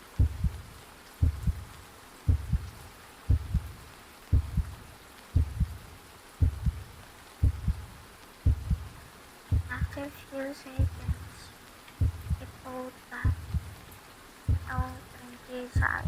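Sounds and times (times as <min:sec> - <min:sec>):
heartbeat thumps: 0:00.0 - 0:10.0, 0:10.8 - 0:11.4, 0:12.0 - 0:12.6, 0:13.2 - 0:13.9, 0:14.5 - 0:15.0, 0:15.8 - 0:16.0.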